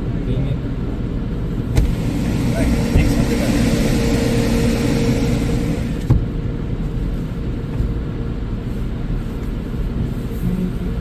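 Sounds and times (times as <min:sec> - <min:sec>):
car wash low rumble: 0:00.1 - 0:11.0
car wash spray hissing: 0:01.7 - 0:06.2.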